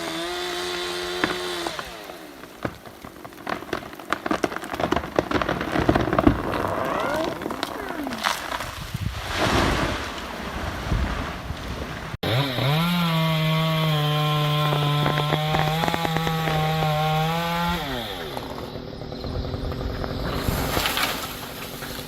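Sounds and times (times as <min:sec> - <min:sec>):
rough sawing: 0:00.0 - 0:03.5, 0:06.0 - 0:10.1, 0:12.2 - 0:22.0
chainsaw cutting wood: 0:00.0 - 0:08.9, 0:12.2 - 0:22.0.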